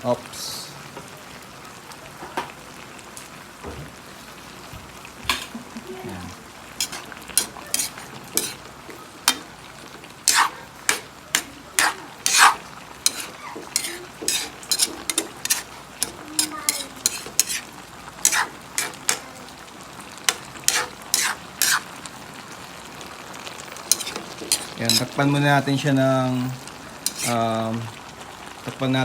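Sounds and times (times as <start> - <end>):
vegetables sizzling: 0.0 - 29.0
utensil scraping a pan: 6.8 - 19.3, 20.2 - 22.0, 23.8 - 25.3, 27.0 - 27.5.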